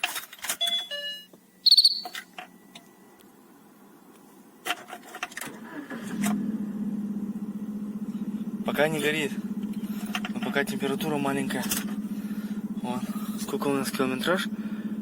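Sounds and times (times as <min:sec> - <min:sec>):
short high-pitched beep: 0:00.6 - 0:02.3
car engine starting and idling: 0:04.5 - 0:15.0.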